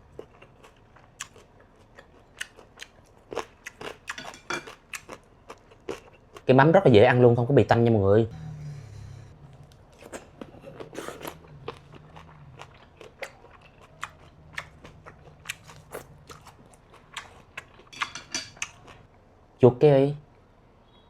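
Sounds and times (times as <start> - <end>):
crunchy chewing with mouth clicks: 0.0 - 6.5, 9.4 - 19.1.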